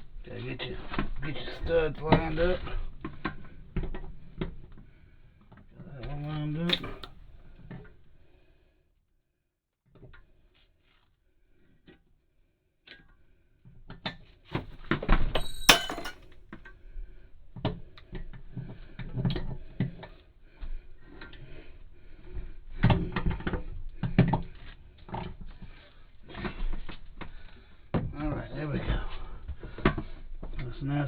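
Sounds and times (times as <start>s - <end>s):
toilet knocking and scraping on floor: 15.7s - 16.2s.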